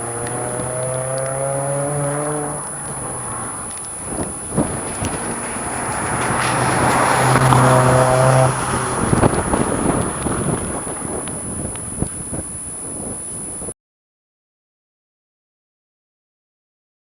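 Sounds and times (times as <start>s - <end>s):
car engine revving: 0.0s - 11.7s
exhaust pops: 0.0s - 12.6s.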